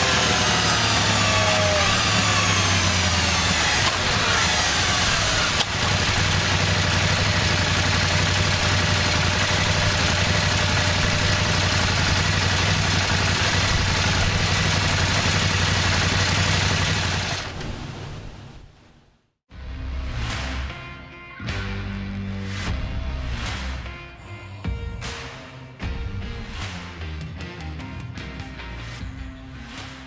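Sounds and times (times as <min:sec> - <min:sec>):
motorcycle engine on dynamometer: 0:00.0 - 0:18.0
dyno drum and spinning tyre: 0:00.0 - 0:18.6.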